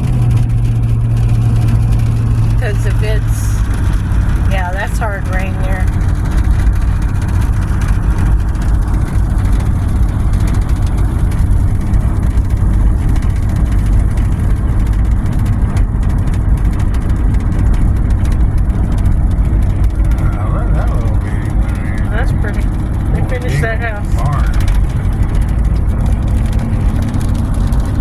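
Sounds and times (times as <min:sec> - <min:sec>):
car road and engine rumble: 0:00.0 - 0:28.0
hard rain: 0:00.0 - 0:28.0.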